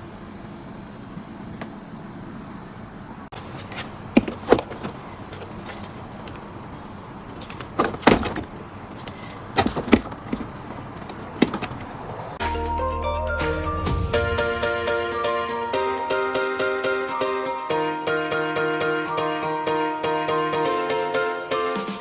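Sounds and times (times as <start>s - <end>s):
low background hum: 0.0s - 12.4s
items clattering in refrigerator: 3.3s - 12.4s.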